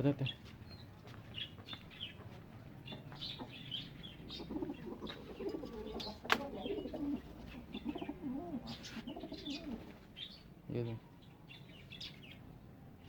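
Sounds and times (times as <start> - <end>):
pigeons cooing: 1.4 - 10.4.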